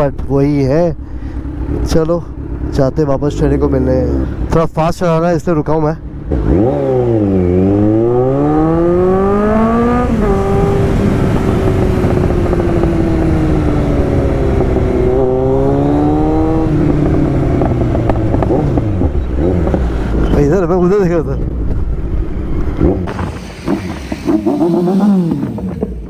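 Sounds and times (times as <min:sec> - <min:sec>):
motorcycle engine accelerating: 0:06.0 - 0:20.6, 0:21.5 - 0:26.0.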